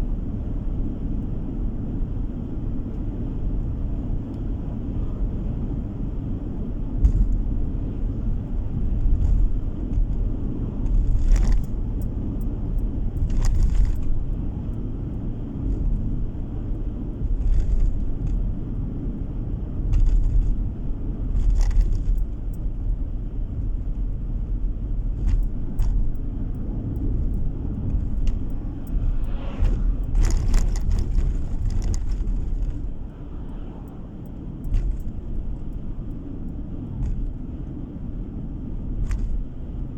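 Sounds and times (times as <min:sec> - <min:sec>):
road and engine rumble: 0:00.0 - 0:39.9
short rattles: 0:25.1 - 0:33.0.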